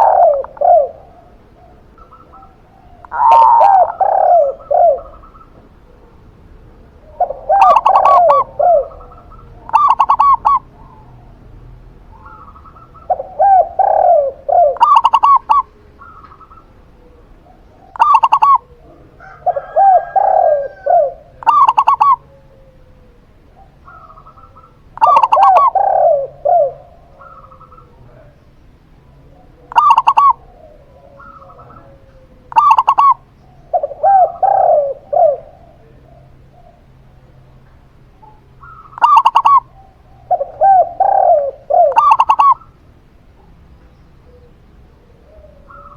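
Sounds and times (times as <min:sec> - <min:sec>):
spotted dove cooing: 0:00.0 - 0:11.4, 0:12.1 - 0:28.4, 0:29.0 - 0:42.8, 0:43.8 - 0:45.9
zebra dove cooing: 0:00.0 - 0:45.9.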